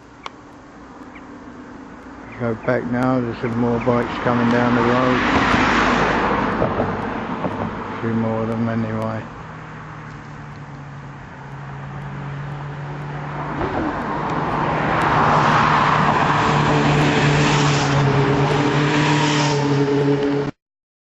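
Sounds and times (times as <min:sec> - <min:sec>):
motorcycle engines: 0:00.0 - 0:20.5.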